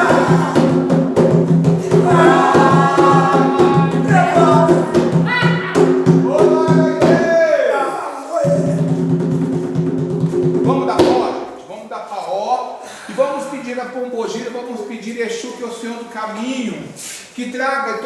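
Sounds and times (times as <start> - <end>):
devotional singing: 0.0 - 1.1, 1.8 - 5.3.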